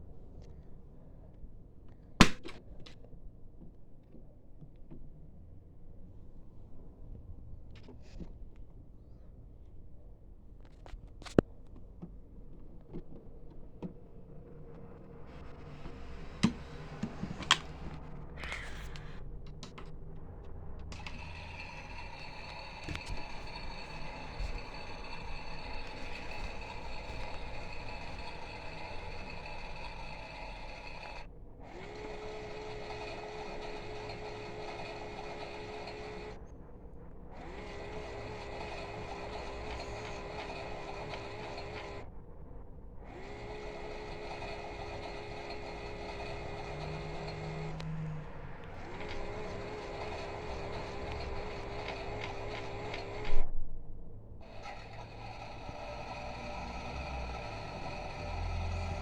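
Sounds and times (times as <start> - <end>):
toy washing machine motor whirring: 12.9 - 20.0, 20.9 - 42.2, 43.0 - 53.5, 54.4 - 59.0.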